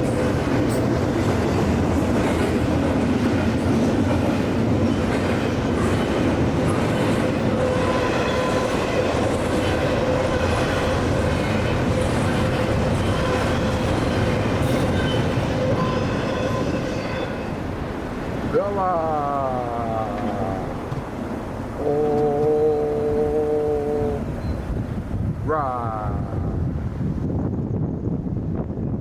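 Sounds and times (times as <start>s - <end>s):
train wheels rumbling on rail: 0.0s - 29.0s
thin ringing tone from wheels: 24.4s - 24.8s.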